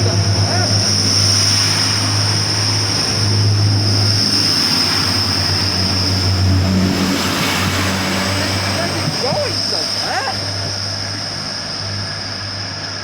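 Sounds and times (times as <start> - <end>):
diesel train engines idling: 0.0 - 4.3, 7.6 - 13.0.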